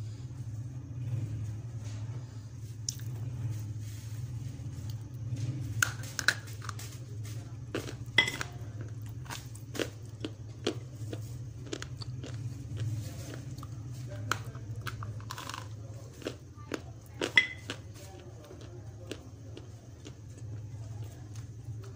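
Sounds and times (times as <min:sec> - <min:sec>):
steady low hum: 0:00.0 - 0:21.9
clay being bitten crunching: 0:07.7 - 0:20.2.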